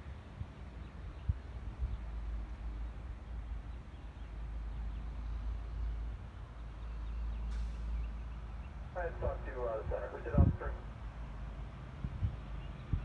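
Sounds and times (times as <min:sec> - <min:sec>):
wind buffeting microphone: 0:09.3 - 0:10.8, 0:11.8 - 0:13.0.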